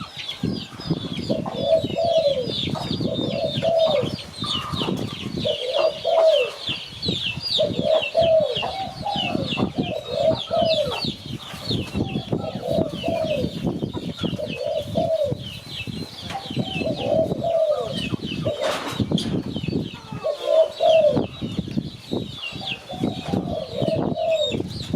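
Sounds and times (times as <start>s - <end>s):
dove cooing: 1.2s - 6.7s, 7.6s - 15.5s, 16.4s - 19.0s, 20.0s - 21.4s, 22.6s - 24.7s.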